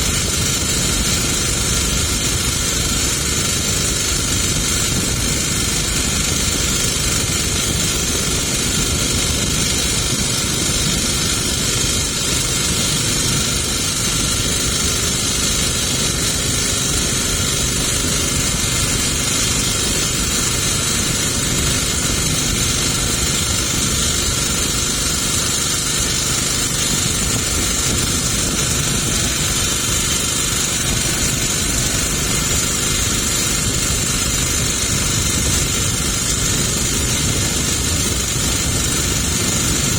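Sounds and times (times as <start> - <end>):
constant rushing hiss: 0.0 - 39.9
motorboat engine running: 0.0 - 39.9.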